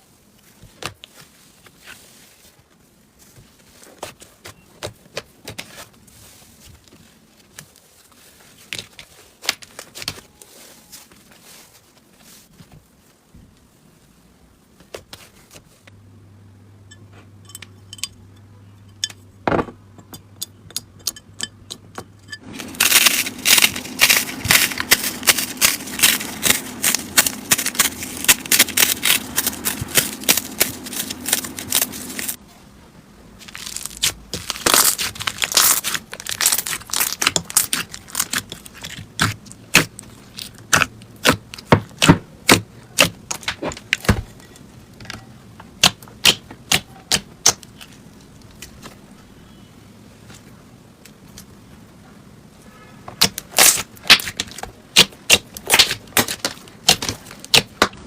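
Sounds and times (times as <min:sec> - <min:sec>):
slime crackling and popping: 0:22.6 - 0:32.4, 0:33.4 - 0:44.1, 0:53.2 - 0:58.0.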